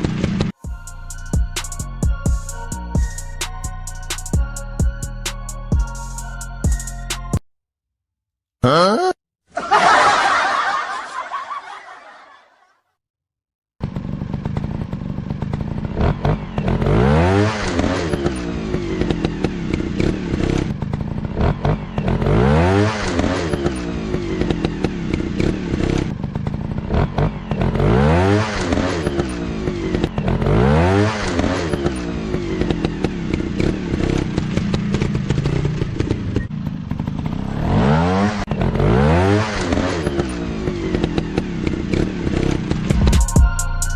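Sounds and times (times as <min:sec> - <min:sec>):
dirt bike engine revving: 0:13.8 - 0:43.0.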